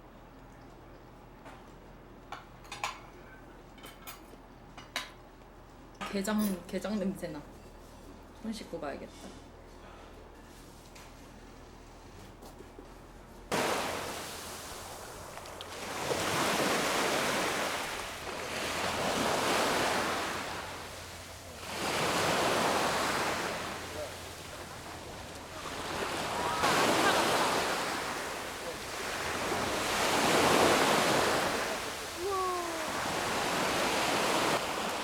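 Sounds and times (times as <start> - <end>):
sea waves breaking on shore: 13.5 - 35.0.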